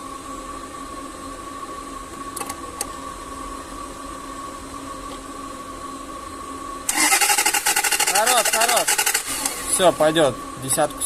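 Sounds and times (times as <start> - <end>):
mechanical hum with whine: 0.0 - 11.0.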